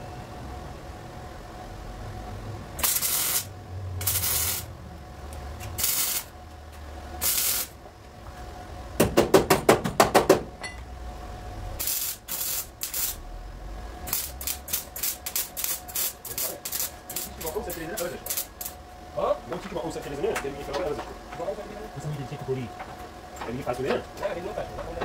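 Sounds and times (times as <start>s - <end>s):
short bursts of hissing: 2.8s - 4.7s, 7.2s - 7.8s.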